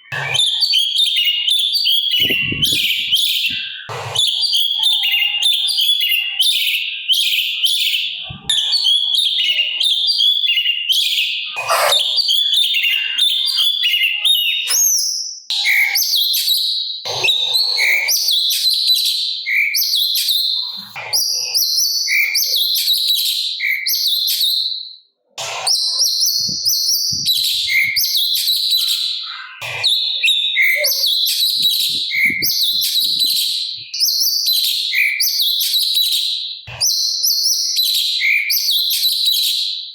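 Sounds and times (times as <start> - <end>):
bird singing harsh phrases: 0.0 - 16.6, 25.4 - 36.1.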